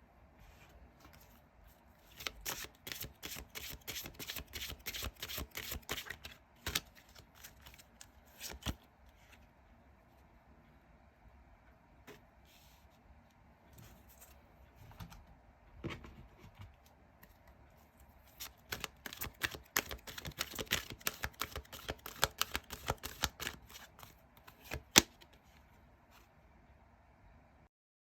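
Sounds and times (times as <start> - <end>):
cards shuffling: 2.1 - 8.8, 18.4 - 25.4.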